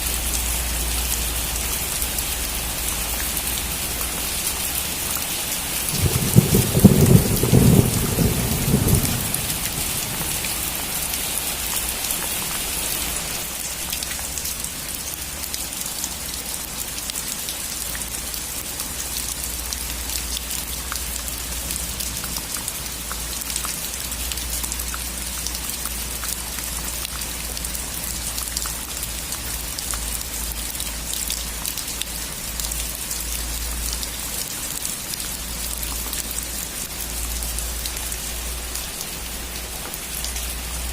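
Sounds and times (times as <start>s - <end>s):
rain on a roof: 0.0s - 40.9s
thunder rumbling: 5.9s - 10.9s.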